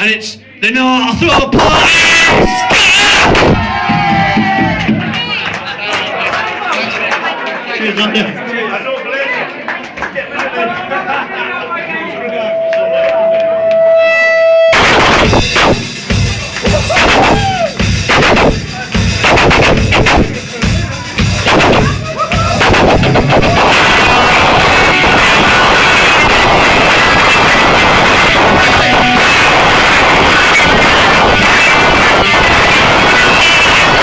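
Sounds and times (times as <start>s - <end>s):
dense wall of noise: 0.0s - 5.9s, 11.0s - 34.0s
crowd cheering and whistling: 2.0s - 7.6s, 12.0s - 18.3s, 21.1s - 34.0s
sharp bangs: 14.7s - 15.9s.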